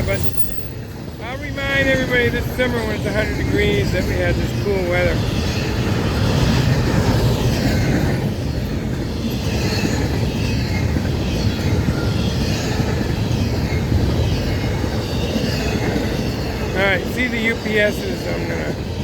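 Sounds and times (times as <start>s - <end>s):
freight train wheels clattering on rails: 0.0s - 19.0s.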